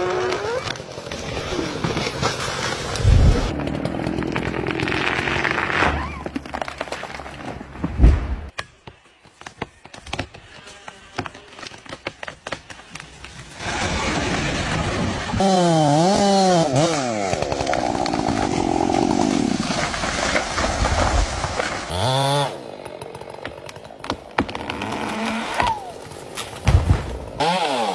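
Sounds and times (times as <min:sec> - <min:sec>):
chainsaw cutting wood: 0:00.0 - 0:07.9, 0:15.3 - 0:26.5, 0:27.4 - 0:27.9
heavy thud: 0:07.4 - 0:08.5.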